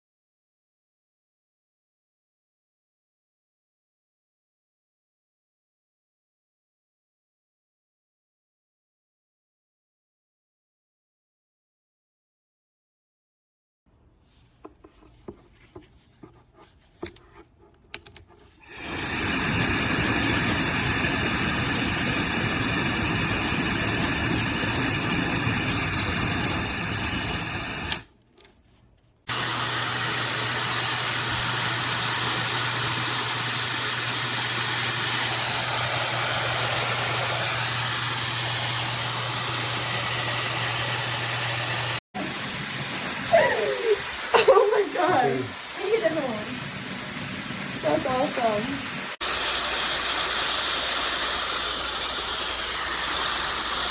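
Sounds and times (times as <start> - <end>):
hair dryer blowing air: 18.6 - 28.1, 29.3 - 53.9.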